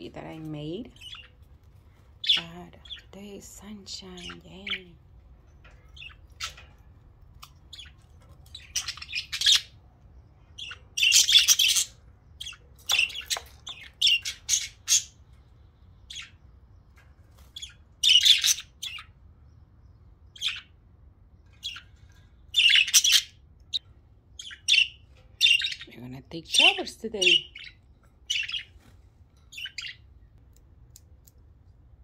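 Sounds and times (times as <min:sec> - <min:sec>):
budgerigars chirping: 0:00.4 - 0:01.4, 0:02.2 - 0:04.9, 0:05.6 - 0:06.8, 0:07.4 - 0:09.8, 0:10.4 - 0:15.2, 0:15.9 - 0:16.5, 0:17.5 - 0:19.1, 0:20.3 - 0:20.7, 0:22.6 - 0:28.8, 0:29.5 - 0:30.0.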